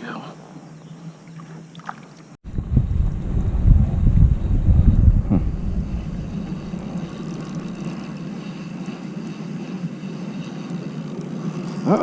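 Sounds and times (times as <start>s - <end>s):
wind buffeting microphone: 2.4s - 10.1s.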